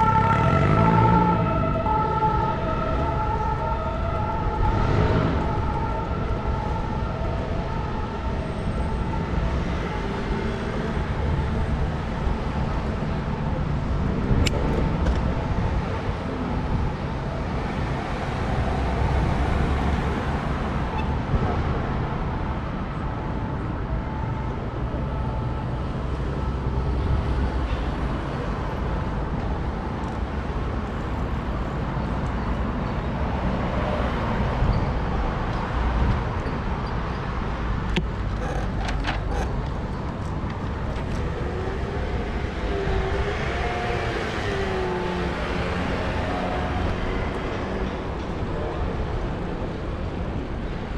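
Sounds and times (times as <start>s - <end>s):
cars passing: 0.0s - 7.6s.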